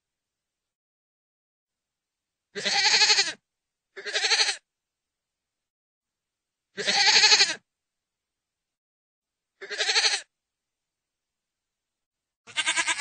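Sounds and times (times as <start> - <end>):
goat bleating: 2.6 - 3.4, 4.0 - 4.6, 6.8 - 7.6, 9.6 - 10.3, 12.5 - 13.0.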